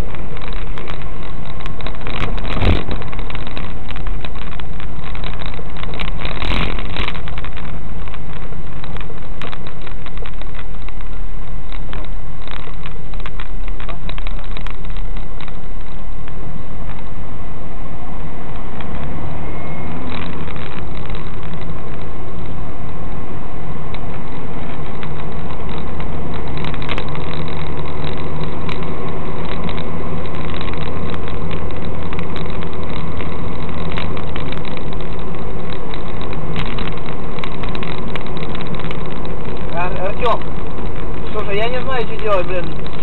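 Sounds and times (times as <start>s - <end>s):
sharp clicks and crackles: 0.0s - 17.2s, 18.1s - 43.0s
car engine idling: 0.0s - 43.0s.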